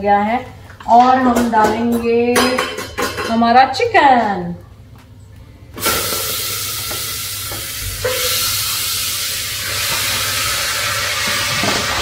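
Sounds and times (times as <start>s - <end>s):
chicken sizzling in butter: 5.8s - 12.0s.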